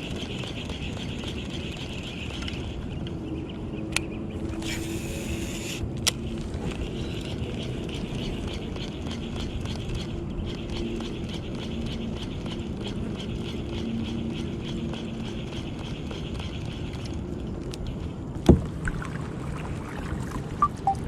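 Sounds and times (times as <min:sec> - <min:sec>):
fishing line whirring off reel: 0:04.5 - 0:05.8.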